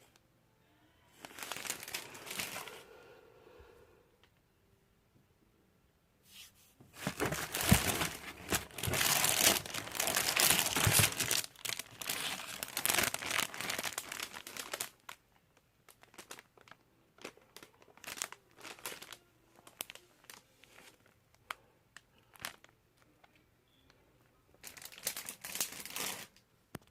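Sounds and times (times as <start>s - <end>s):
packaging crinkling: 1.2s - 2.8s, 7.0s - 23.1s, 24.6s - 26.4s.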